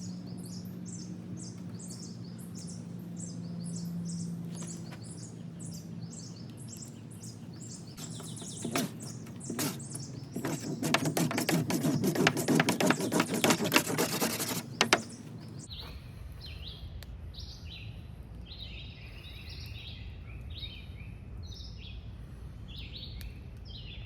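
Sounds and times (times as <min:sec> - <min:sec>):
birds chirping: 0:00.0 - 0:16.7
clicks and rustling handling noise: 0:08.0 - 0:15.6
rapid scratching: 0:08.0 - 0:15.6.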